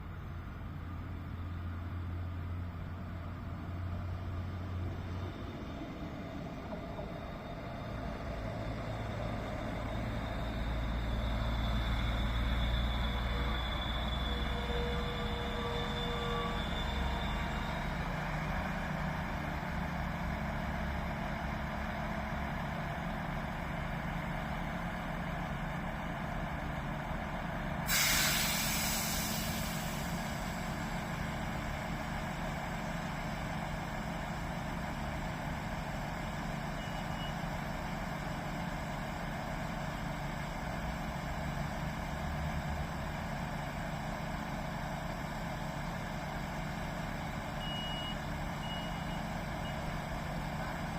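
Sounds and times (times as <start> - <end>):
diesel engine running: 0.0 - 50.9
air brake hiss: 27.8 - 30.9.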